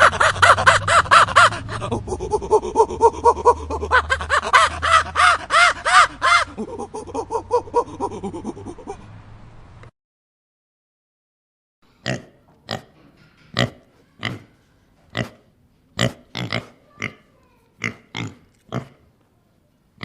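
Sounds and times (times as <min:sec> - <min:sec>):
animal calling rapidly: 0:00.0 - 0:09.0.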